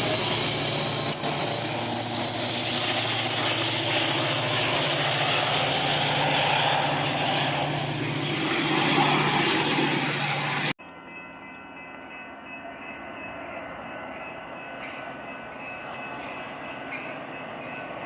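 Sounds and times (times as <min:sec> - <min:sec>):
train wheels rushing on rails: 0:00.0 - 0:10.7
train engine drone: 0:00.0 - 0:18.0.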